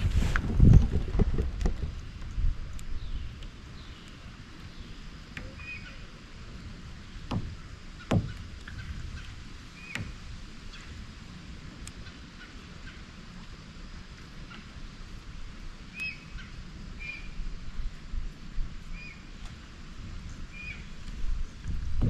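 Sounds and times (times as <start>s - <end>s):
wind buffeting microphone: 0.0s - 4.0s, 19.8s - 22.0s
short knocks: 7.3s - 8.8s.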